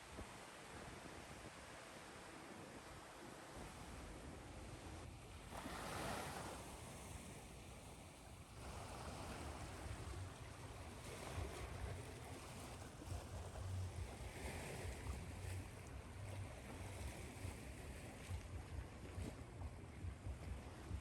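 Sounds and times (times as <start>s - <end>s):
ocean surf washing: 5.5s - 18.4s
low fluttering rumble: 8.9s - 21.0s.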